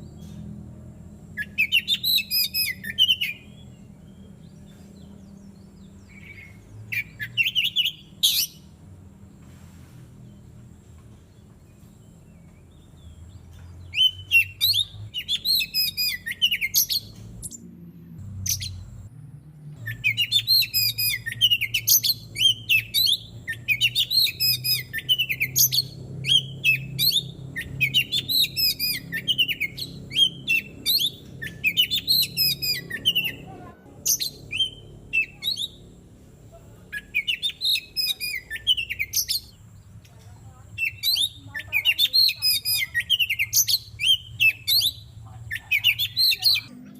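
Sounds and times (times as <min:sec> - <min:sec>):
magpie-robin singing whistles: 0:01.4 - 0:04.3, 0:06.0 - 0:08.7, 0:13.9 - 0:17.6, 0:19.8 - 0:33.4, 0:34.1 - 0:35.8, 0:37.0 - 0:39.6, 0:40.8 - 0:46.7.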